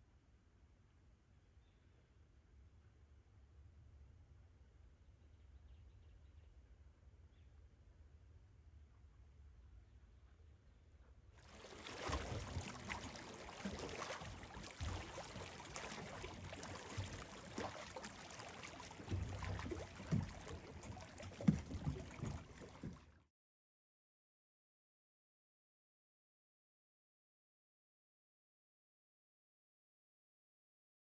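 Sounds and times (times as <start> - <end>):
water slaps and low thumps: 11.4 - 23.2
water sloshing against boat: 11.4 - 23.3.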